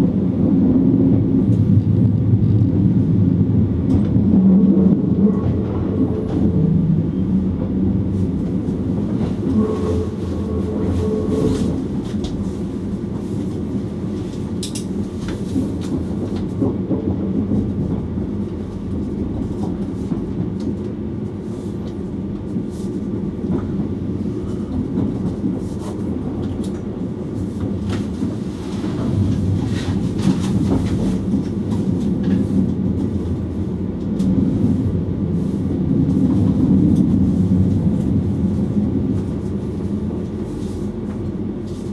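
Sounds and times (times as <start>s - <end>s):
train rumble: 0.0s - 41.9s.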